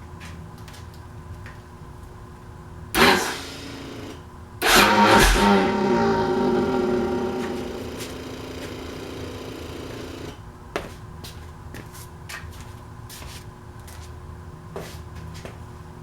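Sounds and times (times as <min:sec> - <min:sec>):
sharp click: 0:04.6 - 0:05.7
motorcycle engine running: 0:04.6 - 0:10.4.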